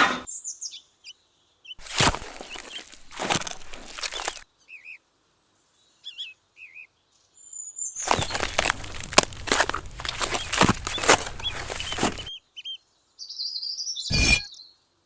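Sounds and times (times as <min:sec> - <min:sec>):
small birds chirping: 0:01.8 - 0:04.4
hand tools scraping and clattering: 0:08.0 - 0:12.3.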